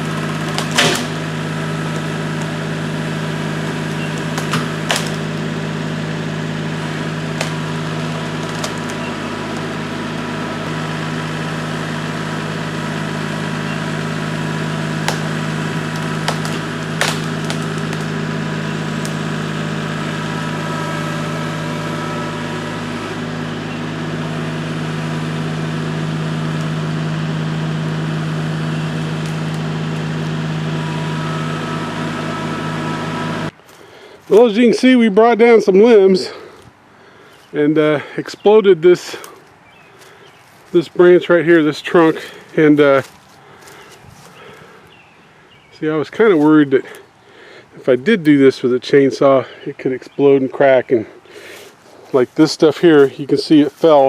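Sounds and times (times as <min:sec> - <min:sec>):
diesel engine running: 0:00.0 - 0:54.0
tree limbs snapping: 0:00.1 - 0:12.6, 0:13.2 - 0:30.8.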